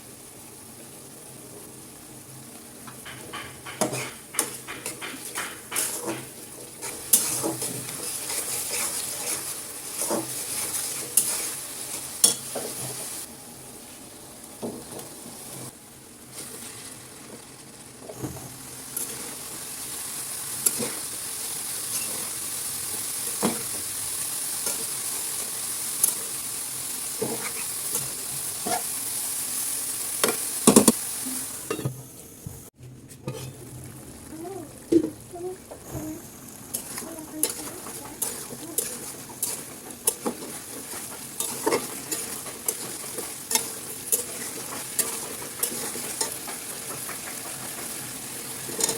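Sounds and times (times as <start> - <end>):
food sizzling in a pan: 0.0 - 48.9
spatula scraping a pan: 3.0 - 13.3, 20.6 - 21.2, 27.1 - 29.0, 33.1 - 33.6, 36.7 - 48.9.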